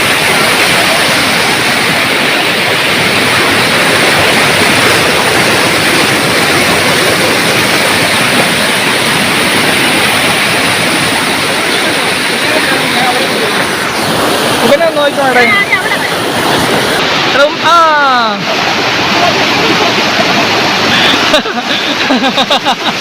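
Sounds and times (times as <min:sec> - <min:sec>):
water rushing: 0:00.0 - 0:23.0.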